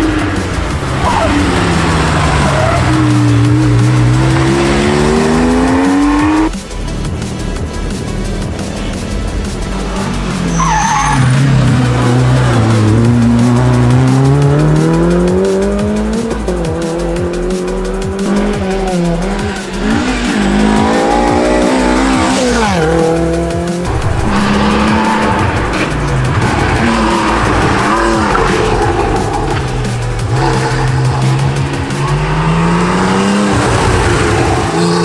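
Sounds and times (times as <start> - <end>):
tyres squealing and skidding: 0.0 - 4.0, 10.0 - 13.9
rally car engines at full throttle: 0.0 - 35.0.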